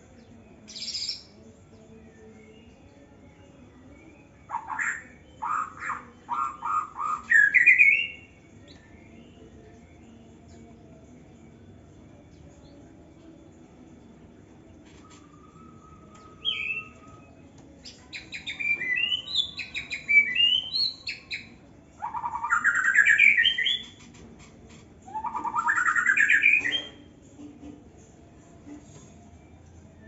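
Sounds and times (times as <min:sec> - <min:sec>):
bird singing whistled notes: 0:03.9 - 0:09.5, 0:15.0 - 0:24.0, 0:25.1 - 0:27.1.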